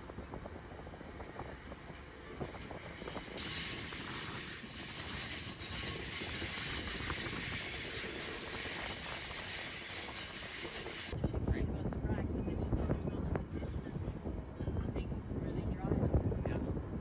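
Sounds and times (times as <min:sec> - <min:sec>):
train rumbling on tracks: 0:00.0 - 0:17.0
loud steady hiss: 0:03.3 - 0:11.2.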